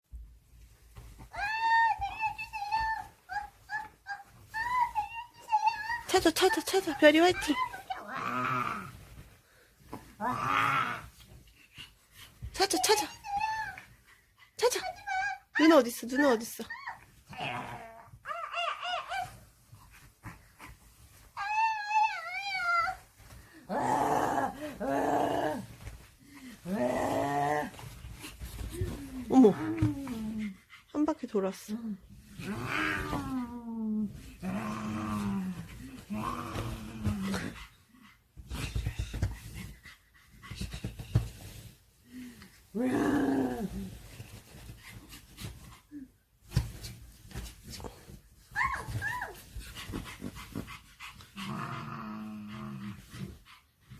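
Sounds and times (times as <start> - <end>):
dog growling: 7.3 - 9.0, 23.7 - 25.9, 32.3 - 33.6, 34.4 - 37.6, 51.4 - 53.3
dog panting: 27.8 - 31.7, 49.4 - 51.6, 52.5 - 53.9.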